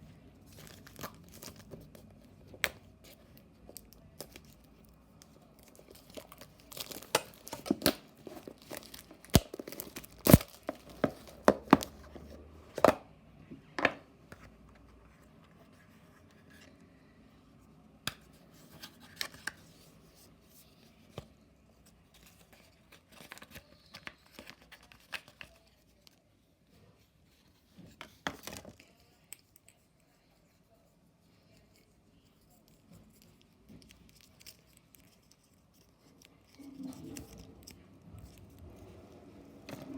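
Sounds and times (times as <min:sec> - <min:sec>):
packaging tearing and crinkling: 0:00.5 - 0:01.8, 0:05.6 - 0:11.9.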